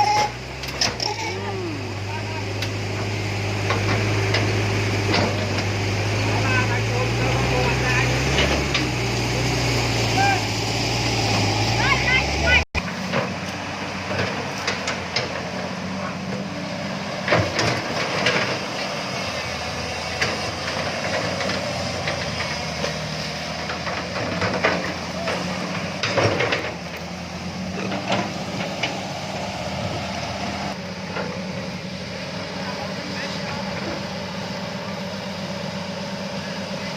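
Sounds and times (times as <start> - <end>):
truck engine running: 0.0 - 36.9
sharp knocks and clatter: 2.6 - 5.8, 17.2 - 18.9, 20.2 - 27.1.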